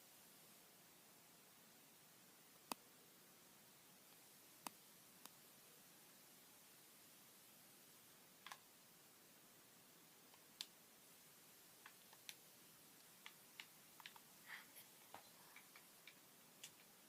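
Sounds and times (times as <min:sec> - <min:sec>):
faint sharp clicks: 0:04.1 - 0:05.4, 0:08.4 - 0:08.7, 0:10.3 - 0:10.8, 0:11.8 - 0:12.4, 0:13.0 - 0:14.3, 0:15.0 - 0:17.0.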